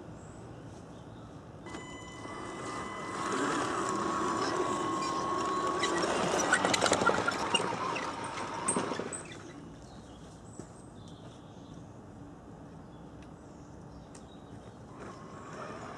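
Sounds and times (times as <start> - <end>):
small electric motor whine: 1.7 - 9.5, 14.9 - 15.9.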